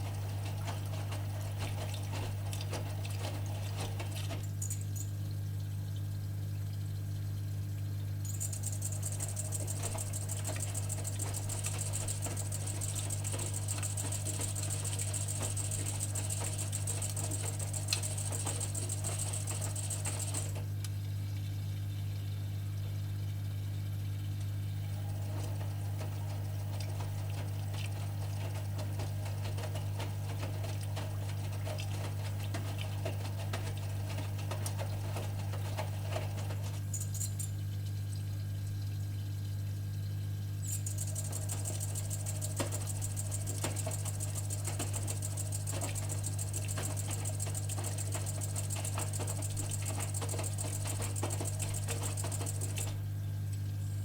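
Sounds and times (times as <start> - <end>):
water and laundry sloshing: 0.0 - 4.6, 9.3 - 20.7, 24.9 - 36.9, 41.5 - 53.8.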